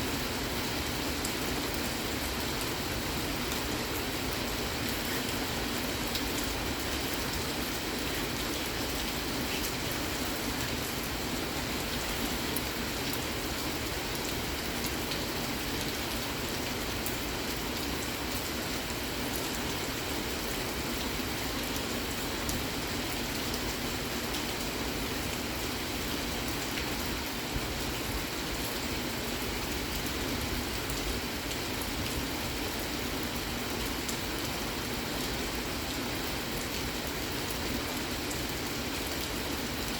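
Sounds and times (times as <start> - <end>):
rain pattering: 0.4 - 39.9.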